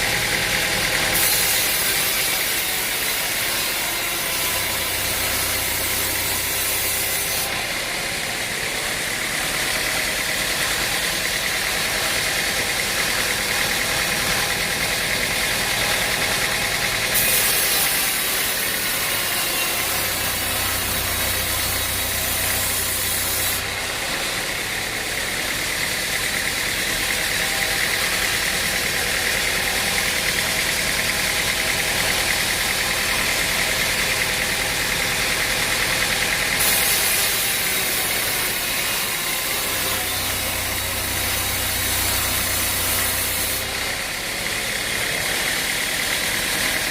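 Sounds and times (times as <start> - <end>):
sawmill machinery droning: 0.0 - 46.9.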